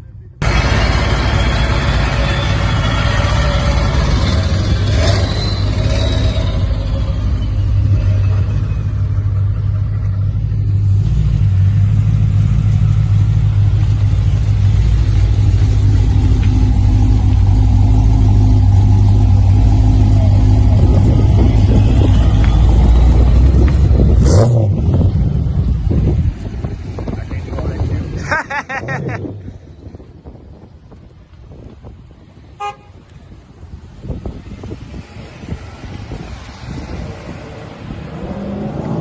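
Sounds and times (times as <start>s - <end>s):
car engine running: 9.3s - 28.0s.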